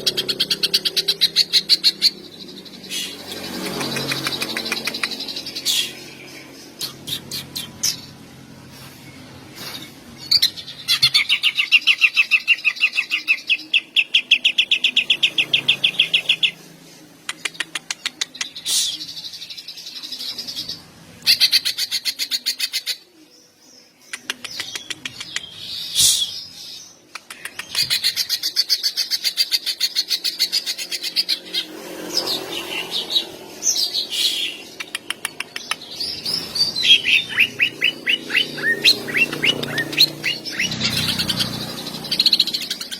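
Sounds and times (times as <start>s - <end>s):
bird singing rapid trills: 0.0s - 8.4s, 10.1s - 16.8s, 27.7s - 42.9s.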